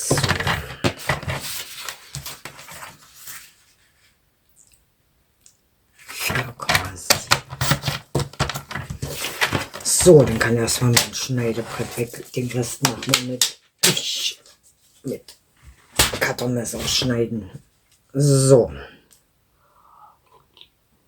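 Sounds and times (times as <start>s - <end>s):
paper rustling and cutting: 0.0s - 3.5s, 6.1s - 12.2s.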